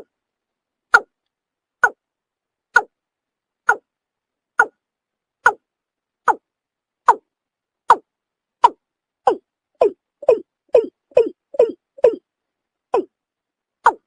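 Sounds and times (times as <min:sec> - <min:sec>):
bird call with falling hollow notes: 0:09.3 - 0:12.2, 0:12.9 - 0:13.1.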